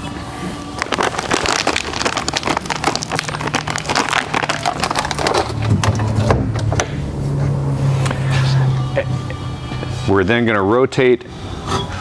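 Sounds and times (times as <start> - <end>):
coffee beans pouring rattle: 0.7 - 5.6.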